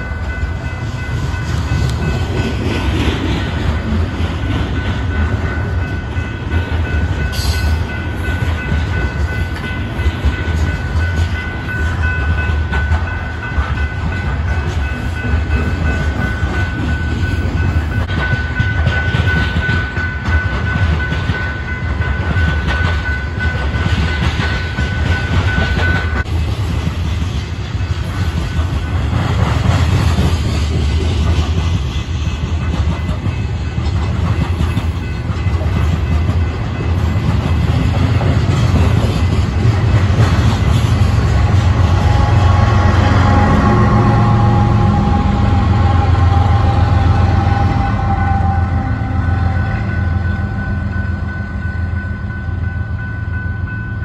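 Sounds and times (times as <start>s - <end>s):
diesel locomotive passing: 0.0s - 54.0s
high ringing tone: 4.7s - 26.2s, 41.7s - 54.0s
freight cars rumbling past: 38.0s - 51.1s.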